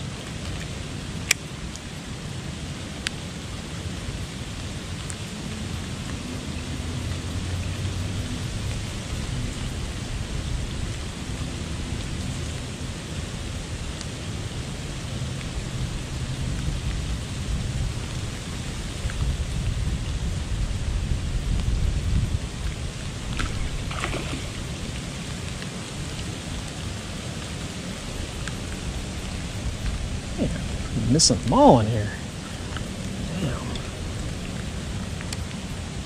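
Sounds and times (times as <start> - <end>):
rain falling on a pond: 0.0 - 36.0.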